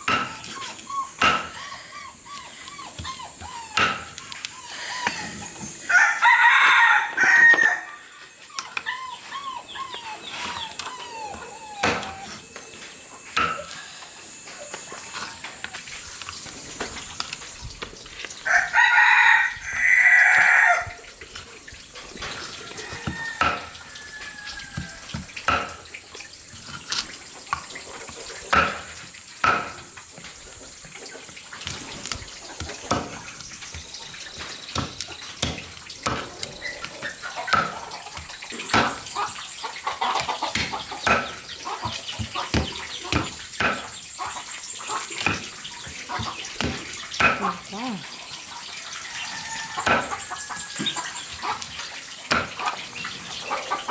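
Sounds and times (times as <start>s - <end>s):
rooster crowing: 4.8s - 8.2s, 18.4s - 21.0s, 22.4s - 25.3s, 48.8s - 51.3s.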